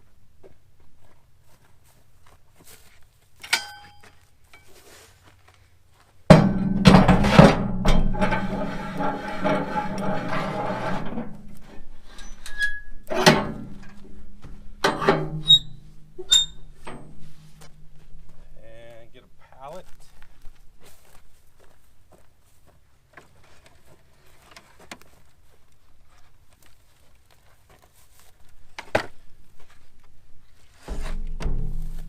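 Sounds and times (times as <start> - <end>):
sharp metal knocks: 3.4 - 4.0, 6.3 - 9.1, 12.7 - 18.0, 30.9 - 32.0
heavy metal clank ringing: 6.3 - 11.5, 14.7 - 18.0
low steady hum: 6.3 - 20.0.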